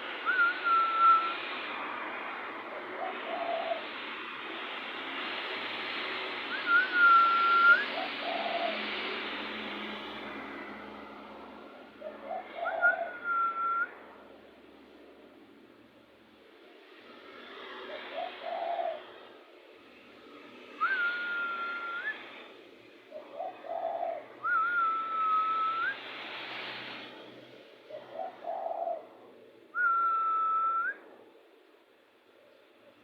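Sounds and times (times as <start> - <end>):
clear rising whistle: 0.2 - 1.4, 6.5 - 8.0, 12.6 - 14.0, 20.8 - 22.5, 24.4 - 26.1, 29.7 - 31.0
dove cooing: 2.6 - 4.7, 6.7 - 9.6, 11.7 - 14.4, 17.6 - 19.6, 23.0 - 26.1, 27.8 - 31.6.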